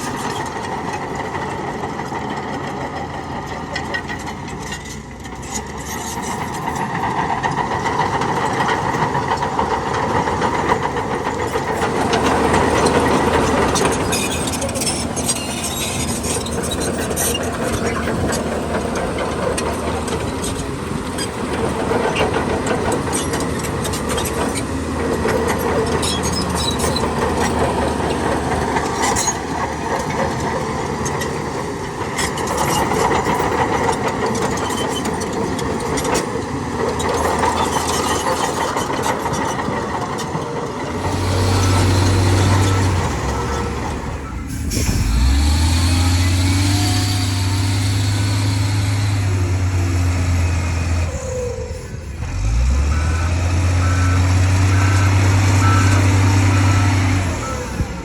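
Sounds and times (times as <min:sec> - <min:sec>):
heavy diesel machinery engine: 0:00.0 - 0:58.0
engine revving: 0:40.8 - 0:58.0.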